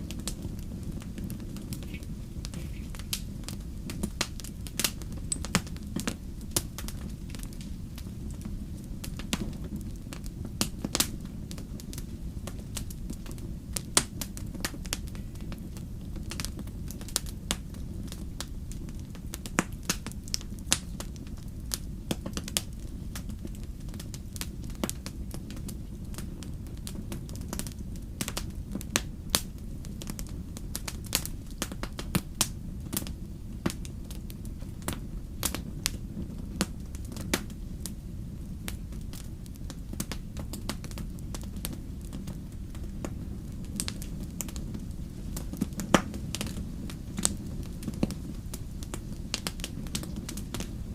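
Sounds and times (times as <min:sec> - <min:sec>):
low fire rumble: 0:00.0 - 0:50.9
wood fire crackling: 0:00.0 - 0:50.9.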